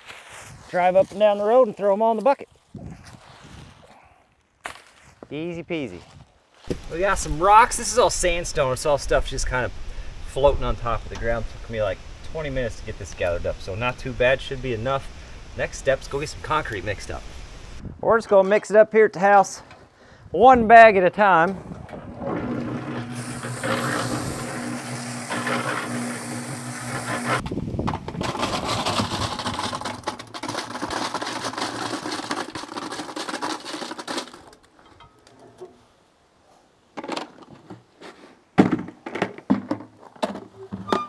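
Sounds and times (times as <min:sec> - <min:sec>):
concrete mixer motor hum: 0:21.9 - 0:27.4
concrete churning: 0:22.0 - 0:27.4, 0:28.1 - 0:34.7.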